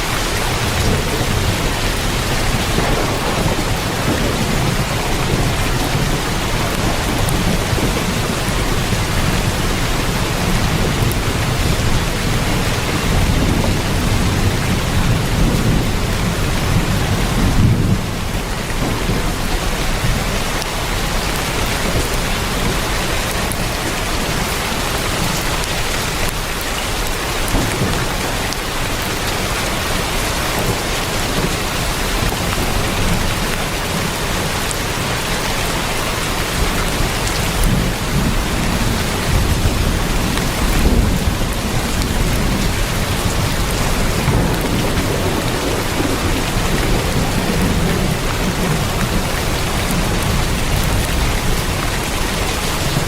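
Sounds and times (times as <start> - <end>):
heavy rain on a tin roof: 0.0 - 53.0.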